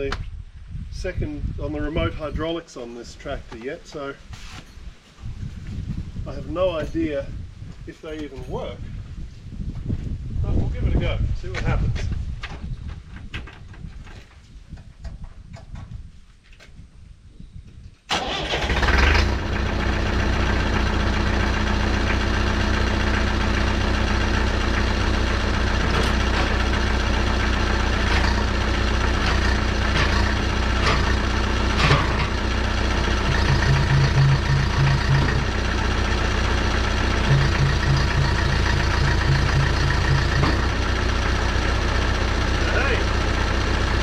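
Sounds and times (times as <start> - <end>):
tractor engine idling: 18.1 - 44.0
pulsing drone: 37.2 - 40.7.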